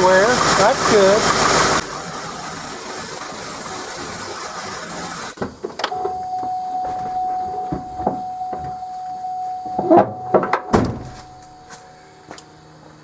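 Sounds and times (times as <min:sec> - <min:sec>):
car engine idling: 0:00.0 - 0:04.7, 0:05.4 - 0:13.0
steady high tone: 0:05.9 - 0:12.9.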